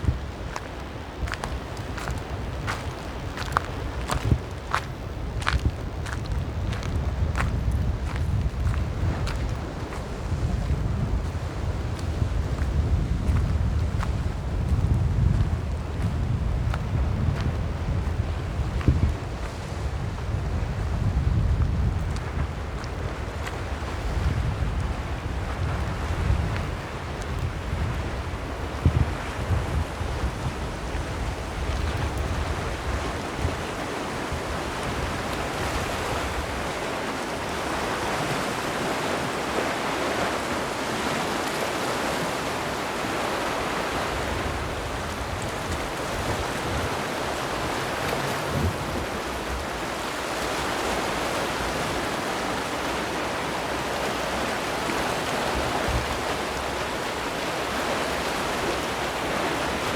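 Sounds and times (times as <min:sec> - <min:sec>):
sea waves washing in: 0:00.0 - 0:59.9
wind buffeting microphone: 0:00.0 - 0:59.9.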